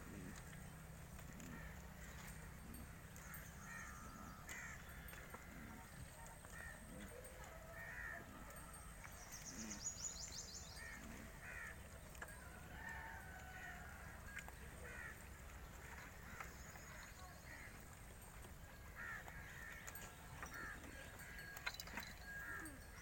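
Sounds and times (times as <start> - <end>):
crows cawing: 1.3 - 2.4, 3.2 - 5.8, 6.4 - 6.9, 7.7 - 8.3, 10.7 - 11.8, 12.8 - 17.8, 18.8 - 23.0.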